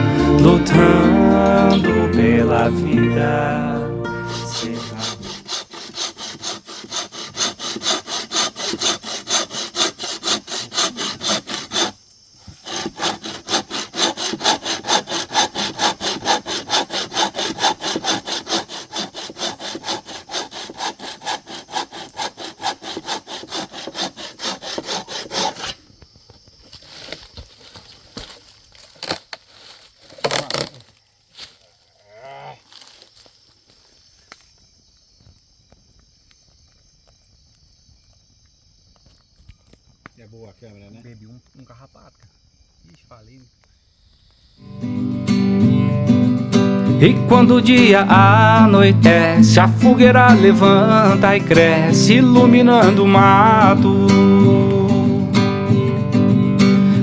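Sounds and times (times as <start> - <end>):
hand saw cutting wood: 4.1 - 25.8.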